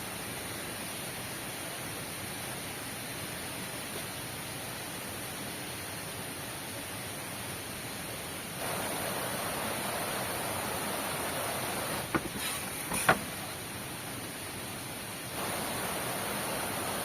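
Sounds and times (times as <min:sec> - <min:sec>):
heavy rain: 0:00.0 - 0:17.0
sharp knocks: 0:12.1 - 0:13.4.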